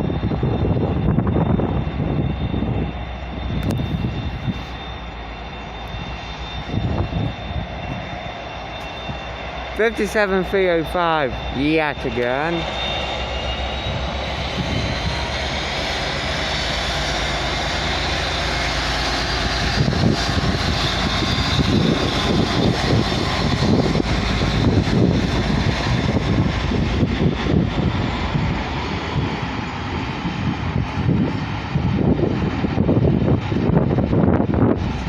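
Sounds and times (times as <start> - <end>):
diesel locomotive engine: 0.0 - 35.0
faint high whine: 0.1 - 15.8.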